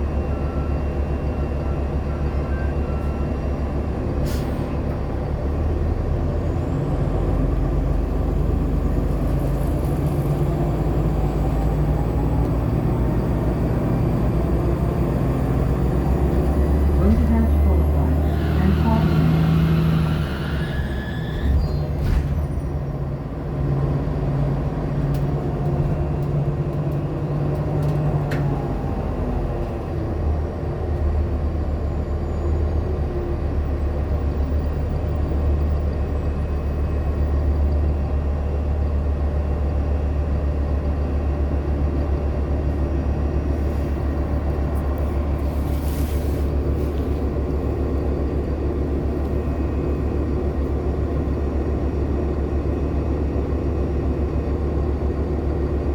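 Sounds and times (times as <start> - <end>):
bus engine drone: 0.0 - 55.9
brief hiss: 45.5 - 47.1.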